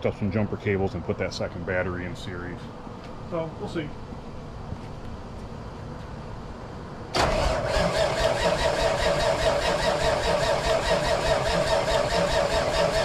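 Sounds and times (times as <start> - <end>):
starter cranking diesel engine: 7.1 - 13.0.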